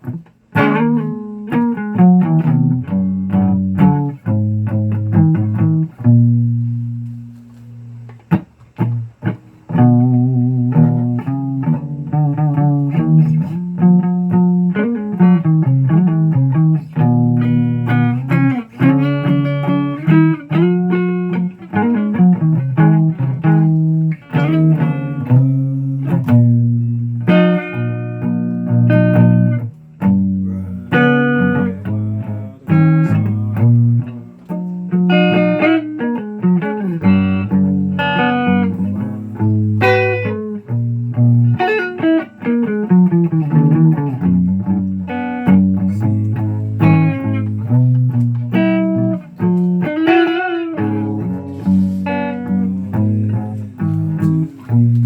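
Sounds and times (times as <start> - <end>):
guitar plucked notes: 0.0 - 55.0
low bass notes: 22.2 - 41.6, 43.1 - 50.1, 50.8 - 55.0.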